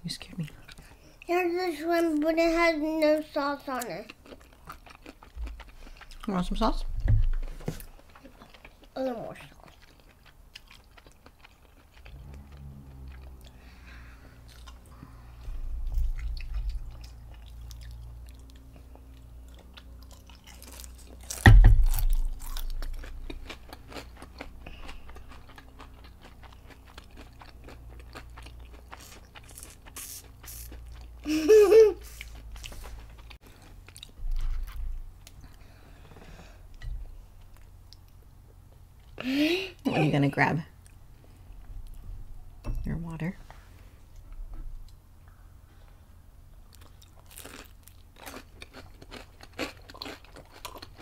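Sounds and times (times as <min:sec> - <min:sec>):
crunchy chewing: 0:03.8 - 0:06.3, 0:07.8 - 0:14.9, 0:16.1 - 0:31.2, 0:46.7 - 0:51.0.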